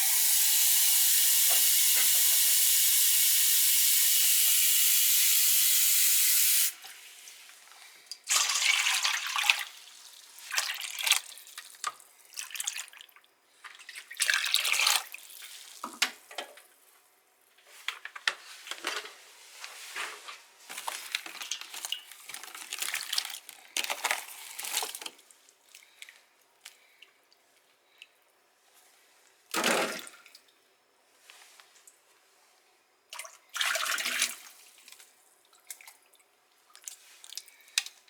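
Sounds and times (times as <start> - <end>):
tap water splashing into sink: 0.0 - 2.9.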